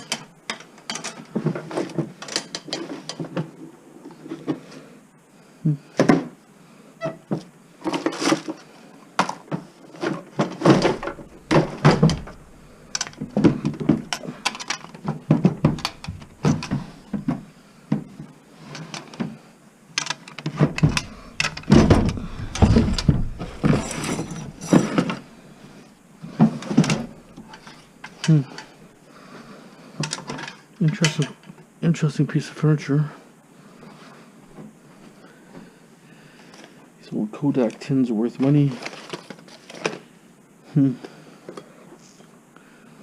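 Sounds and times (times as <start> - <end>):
objects knocking and clattering: 0.0 - 3.6, 9.2 - 19.3, 20.0 - 25.3, 26.4 - 28.6.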